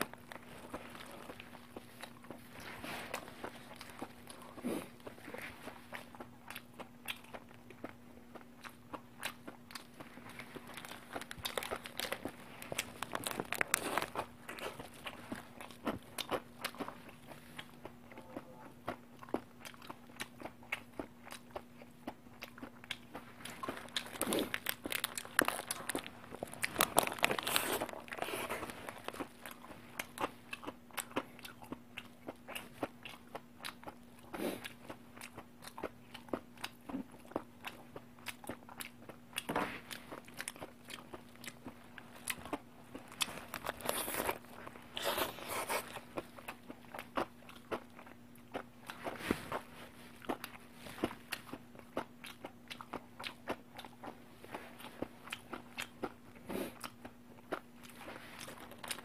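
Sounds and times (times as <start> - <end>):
chewing with wet mouth clicks: 0.0 - 59.0
low steady hum: 0.0 - 59.0
paper wrapper rustling: 24.1 - 28.8.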